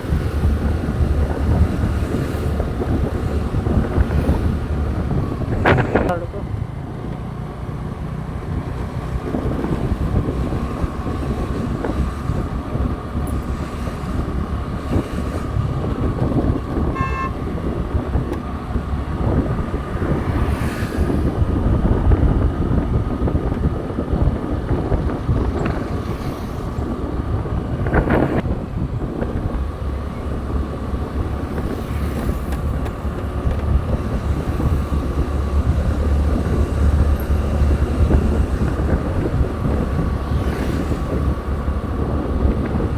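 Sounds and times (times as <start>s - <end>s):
motorcycle engine running: 0.0s - 42.9s
wind rumble on microphone: 0.0s - 42.9s
horn toot: 16.9s - 17.6s.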